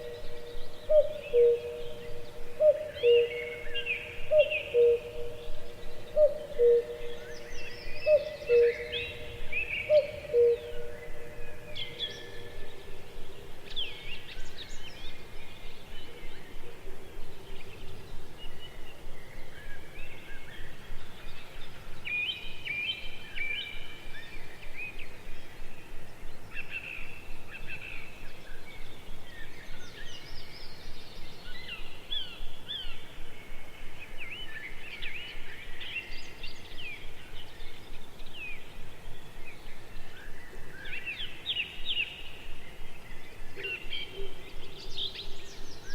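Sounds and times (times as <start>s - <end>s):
birds chirping and calling: 0.0s - 13.0s
steady background hiss: 0.0s - 45.9s.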